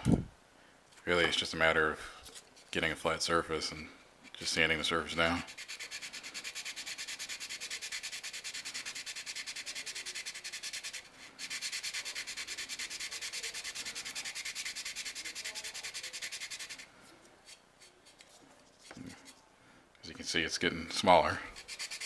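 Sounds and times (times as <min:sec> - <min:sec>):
sandpaper rubbing on plastic: 0:05.4 - 0:16.9, 0:21.6 - 0:22.0.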